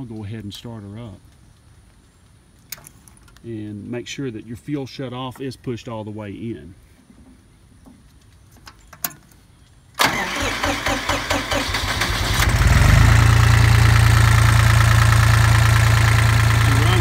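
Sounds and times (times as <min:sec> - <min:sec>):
diesel engine running: 0:10.0 - 0:17.0
diesel engine starter cranking: 0:10.0 - 0:17.0.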